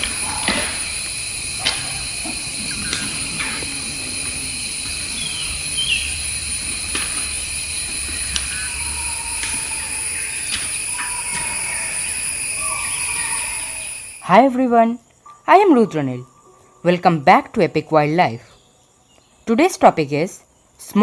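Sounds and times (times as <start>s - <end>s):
high-pitched drone: 0.0s - 14.2s
bird chirps: 1.7s - 6.4s, 8.2s - 14.2s.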